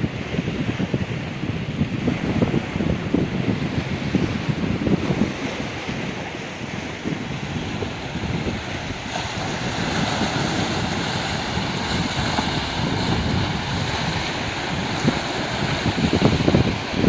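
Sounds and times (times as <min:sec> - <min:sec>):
waves on rocky beach: 0:00.0 - 0:17.0
wind buffeting microphone: 0:00.0 - 0:17.0.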